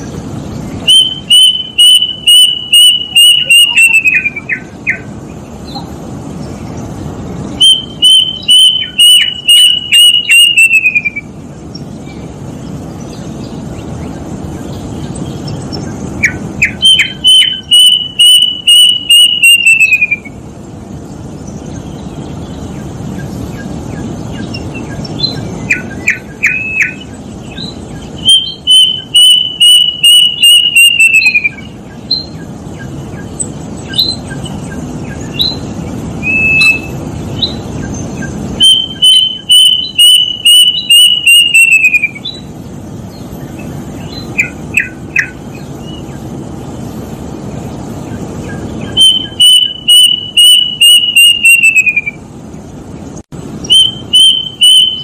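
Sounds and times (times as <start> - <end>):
short rising bird notes: 0.0 - 20.4, 21.1 - 52.2, 53.6 - 55.0
low background noise: 0.0 - 55.0
cuckoo whistling: 0.8 - 5.1, 7.6 - 11.4, 16.2 - 20.4, 25.2 - 32.9, 35.1 - 37.6, 38.2 - 42.5, 48.5 - 52.2, 53.6 - 55.0.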